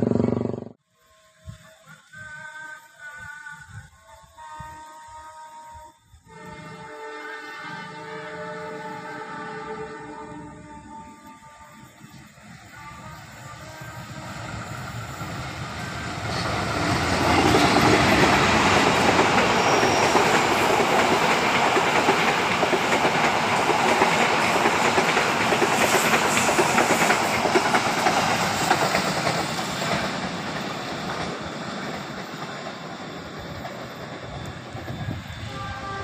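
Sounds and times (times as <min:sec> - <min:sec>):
train wheels clattering over rails: 0:14.7 - 0:35.3.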